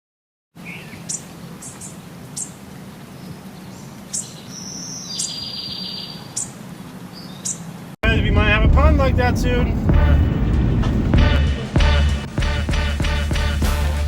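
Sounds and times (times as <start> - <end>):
buzzy bird trill: 0.6 - 7.7
birds chirping: 0.6 - 14.0
low hum: 8.0 - 14.0.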